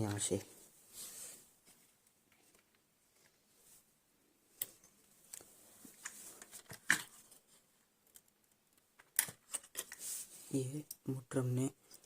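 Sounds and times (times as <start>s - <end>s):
clicks scrapes and rustles: 4.6s - 10.3s.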